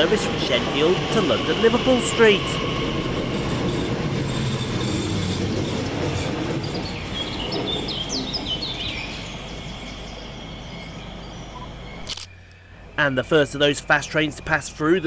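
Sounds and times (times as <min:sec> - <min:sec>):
electric train passing on rails: 0:00.0 - 0:15.0
wheel squeals: 0:03.3 - 0:08.2.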